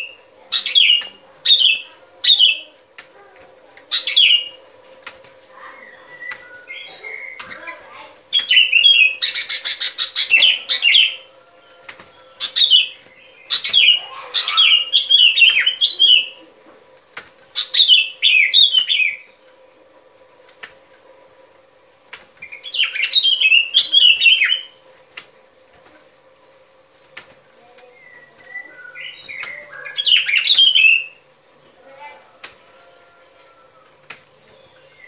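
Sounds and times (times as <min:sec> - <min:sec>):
bulbul chattering song: 0:00.0 - 0:16.7, 0:17.5 - 0:19.4, 0:22.4 - 0:24.9, 0:27.6 - 0:33.7.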